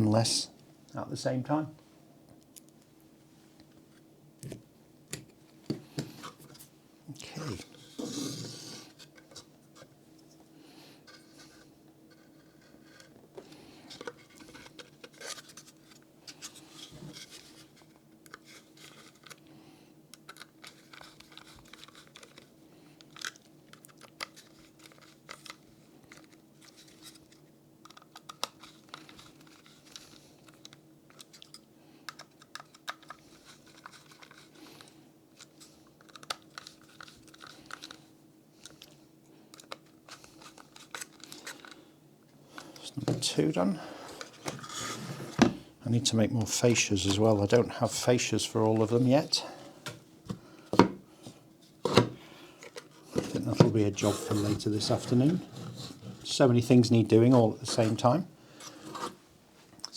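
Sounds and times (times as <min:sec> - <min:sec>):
low electrical hum: 0:00.0 - 0:59.9
hands handling switches and cables: 0:51.8 - 0:56.0.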